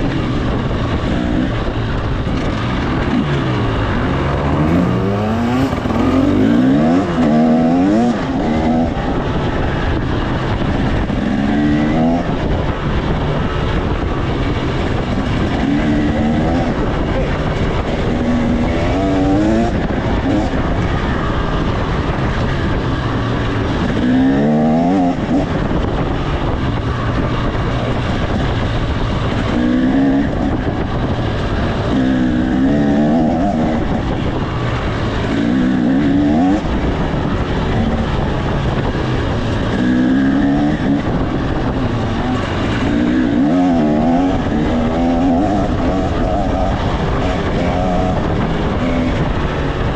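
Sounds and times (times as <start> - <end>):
two-stroke motorcycle engine revving: 0.0 - 49.9.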